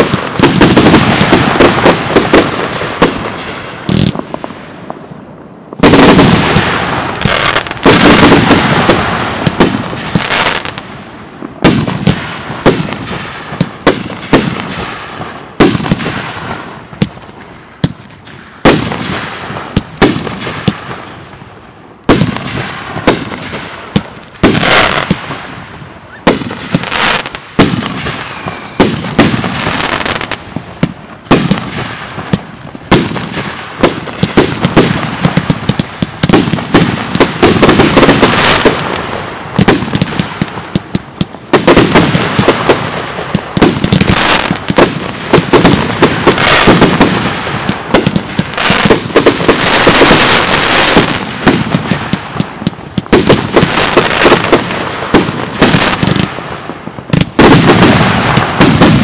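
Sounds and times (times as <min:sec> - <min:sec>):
firework bangs and crackle: 0:00.0 - 0:59.0
falling firework whistle: 0:27.8 - 0:29.0.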